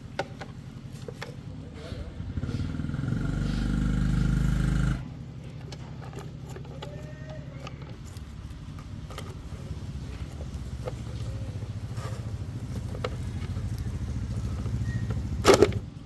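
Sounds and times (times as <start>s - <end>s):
motor running loudly: 2.3s - 5.2s.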